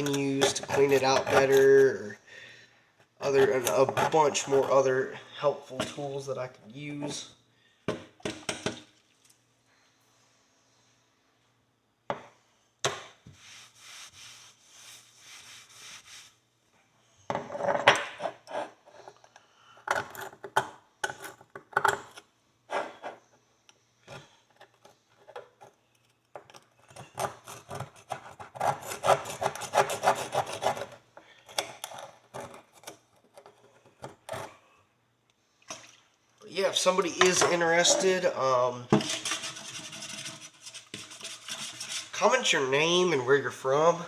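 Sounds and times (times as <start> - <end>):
hand tool scraping dirt: 0.0 - 1.8.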